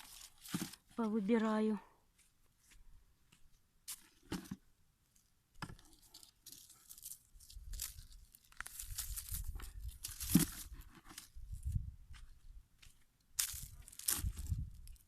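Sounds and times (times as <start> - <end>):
leaves rustling and tearing: 0.0 - 0.8, 5.9 - 11.3, 13.4 - 15.0.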